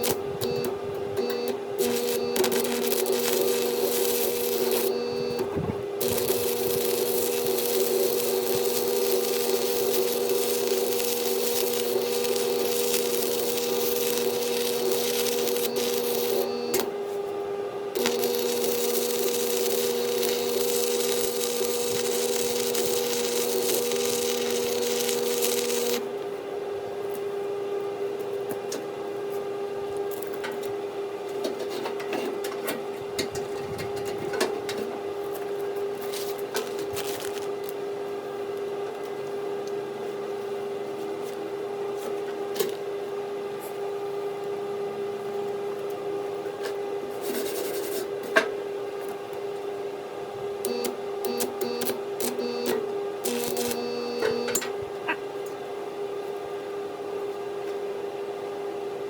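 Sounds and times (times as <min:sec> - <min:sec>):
welding arc crackling and hissing: 0:00.0 - 0:00.7, 0:01.8 - 0:16.9, 0:18.0 - 0:26.1, 0:50.6 - 0:54.6
welder humming: 0:00.0 - 0:17.2, 0:17.9 - 0:26.2, 0:50.6 - 0:55.2.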